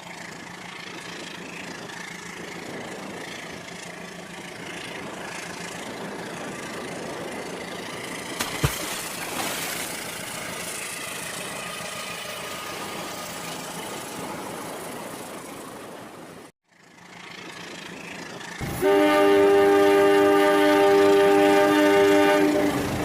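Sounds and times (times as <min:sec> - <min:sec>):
toy train electronic horn: 0:18.7 - 0:23.0.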